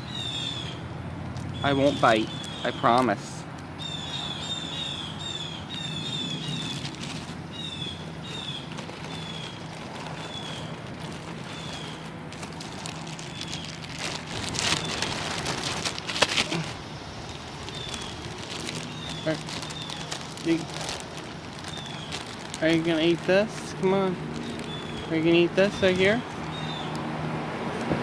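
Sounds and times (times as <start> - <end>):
small bird chirping: 17.3 - 20.7, 21.6 - 22.3, 24.4 - 25.2.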